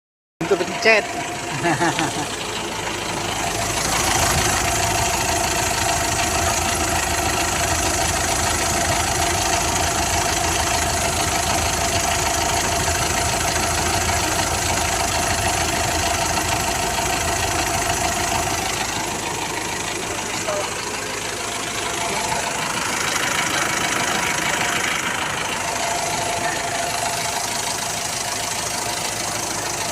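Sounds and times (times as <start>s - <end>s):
car engine revving: 0.4s - 29.9s.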